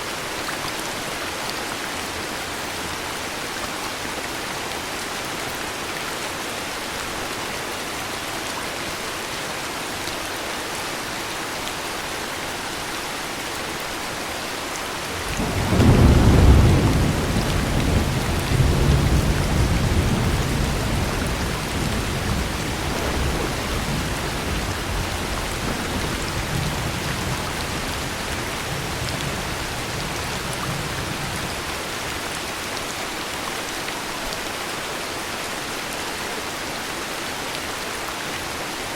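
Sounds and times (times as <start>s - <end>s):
heavy rain: 0.0s - 38.9s
thunder rumbling: 15.2s - 31.8s.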